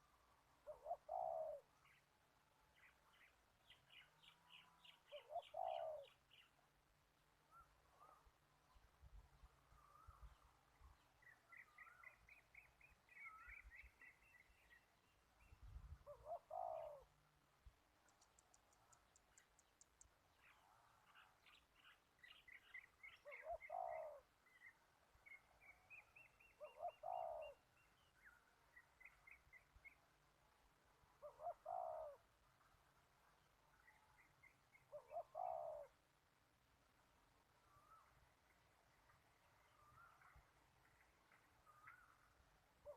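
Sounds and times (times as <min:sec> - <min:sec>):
faint dove cooing: 0:00.6 - 0:02.0, 0:05.0 - 0:06.2, 0:16.0 - 0:17.2, 0:23.0 - 0:24.7, 0:26.6 - 0:27.7, 0:31.2 - 0:32.3, 0:34.9 - 0:36.0
small birds chirping: 0:00.7 - 0:06.7, 0:07.4 - 0:17.1, 0:18.0 - 0:30.1.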